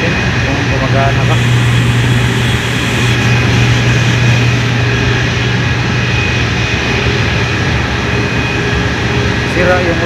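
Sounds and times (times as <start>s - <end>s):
machinery low hum: 0.0s - 10.0s
faint high whines: 1.0s - 8.8s.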